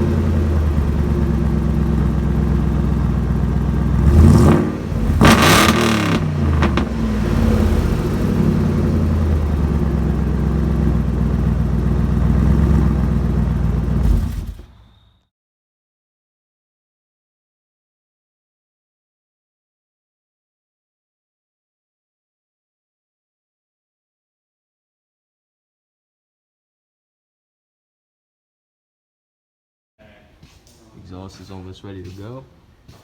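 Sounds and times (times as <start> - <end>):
car engine idling and revving: 0.0 - 14.8.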